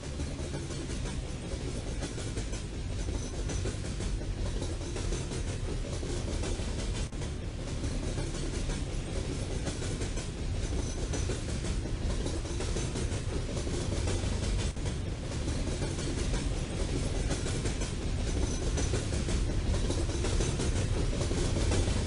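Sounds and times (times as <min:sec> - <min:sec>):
train rolling past rumbling: 0:00.0 - 0:22.0
wheels clattering on rails: 0:00.0 - 0:22.0.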